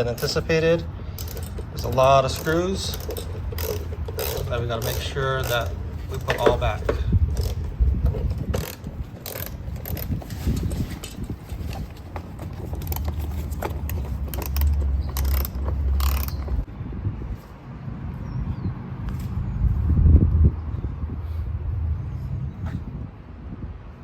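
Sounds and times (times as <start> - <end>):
ratchet wrench clicking: 0.0 - 11.8, 12.7 - 16.7
tools and parts knocking: 0.0 - 16.7.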